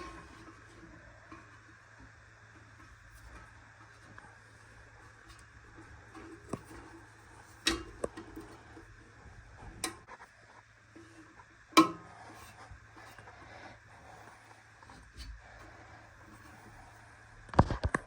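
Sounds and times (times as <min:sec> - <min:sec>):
faint steady hum: 0:00.0 - 0:18.0
sharp knocks and clicks of parts: 0:11.8 - 0:13.2.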